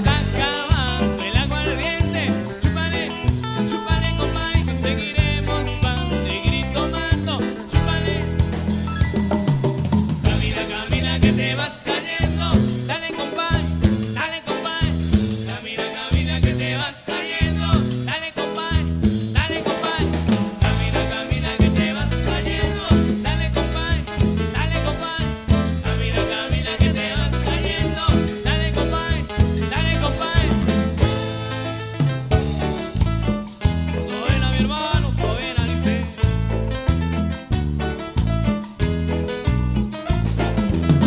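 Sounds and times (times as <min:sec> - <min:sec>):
person singing: 0:00.0 - 0:08.8, 0:10.2 - 0:30.8, 0:33.9 - 0:36.2
band playing upbeat music: 0:00.0 - 0:41.0
bass line: 0:00.0 - 0:41.0
drum kit: 0:00.0 - 0:41.0.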